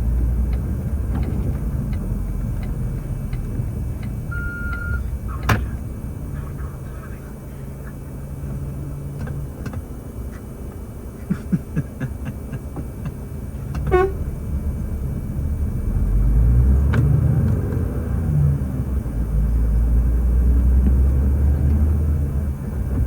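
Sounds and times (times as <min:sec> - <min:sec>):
truck engine running: 0:00.0 - 0:23.0
horn toot: 0:13.9 - 0:14.3.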